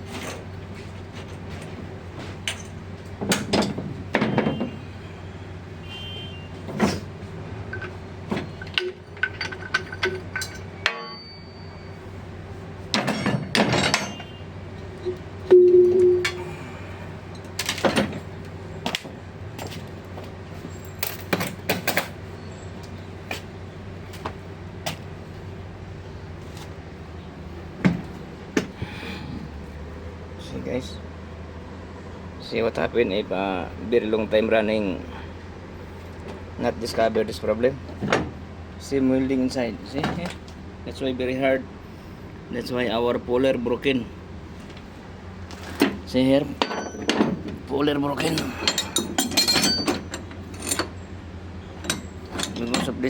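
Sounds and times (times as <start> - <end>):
steady hum: 0.0 - 19.6.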